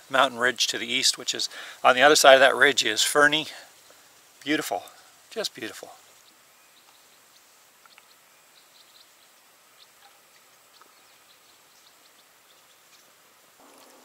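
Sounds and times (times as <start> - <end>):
faint bird chirps: 6.0 - 14.0.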